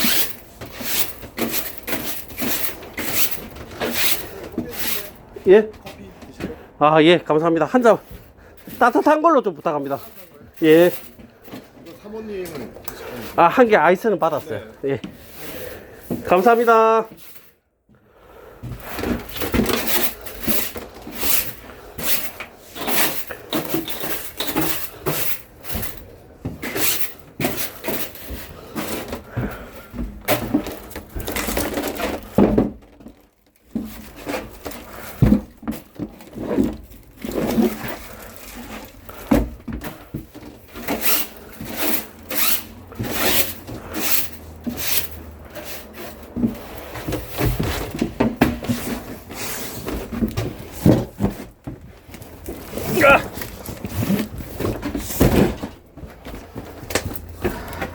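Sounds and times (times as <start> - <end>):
objects knocking and clattering: 0.0 - 6.7, 18.6 - 57.9.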